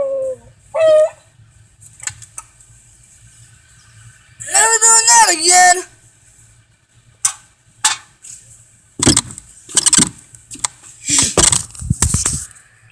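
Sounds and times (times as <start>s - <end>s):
object rattling and rustling: 7.8s - 12.6s.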